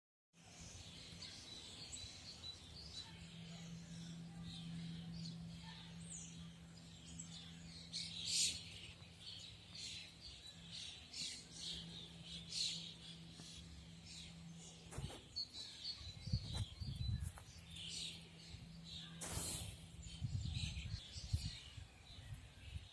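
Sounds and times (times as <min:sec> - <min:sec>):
songbirds chirping: 0:00.4 - 0:22.9
steady low hum: 0:00.4 - 0:22.9.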